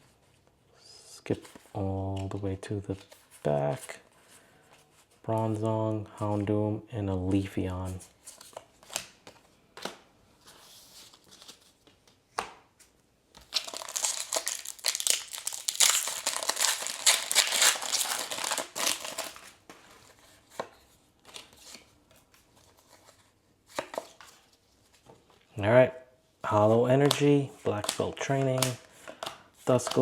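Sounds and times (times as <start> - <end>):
foil pack tearing and crinkling: 13.5 - 19.5.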